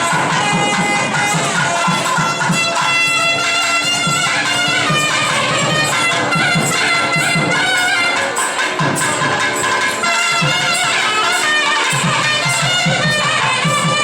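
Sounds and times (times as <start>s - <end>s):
reedy wind instrument melody: 0.0s - 14.0s
regular drum beat: 0.0s - 14.0s.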